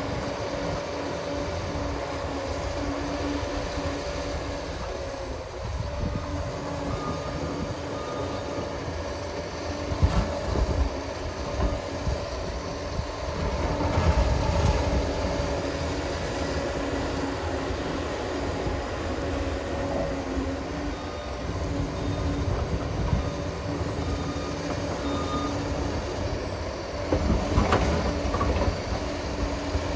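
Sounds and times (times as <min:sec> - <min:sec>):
dozer diesel engine droning: 0:00.0 - 0:29.9
steel tracks knocking and clanking: 0:27.0 - 0:29.9.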